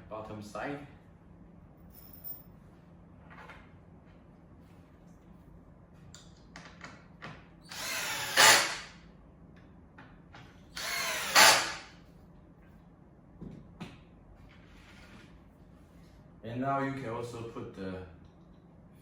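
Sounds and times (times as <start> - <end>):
power drill driving screws: 7.7 - 9.0, 10.8 - 11.9.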